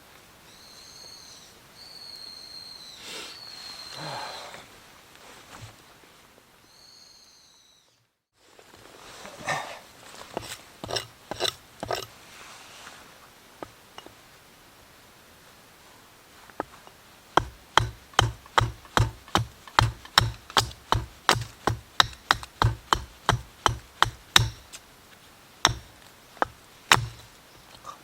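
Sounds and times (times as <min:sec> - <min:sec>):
chopping strikes on wood: 0:17.4 - 0:24.8, 0:25.6 - 0:27.3.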